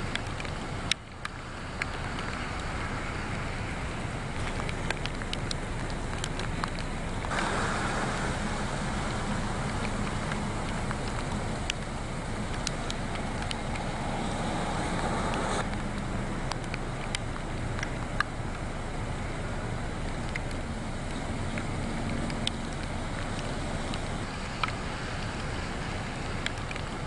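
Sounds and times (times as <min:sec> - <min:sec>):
rain hissing: 0:00.0 - 0:27.0
sharp ticks: 0:04.4 - 0:07.4, 0:08.7 - 0:18.6, 0:20.1 - 0:25.5
low rumble: 0:05.8 - 0:17.4.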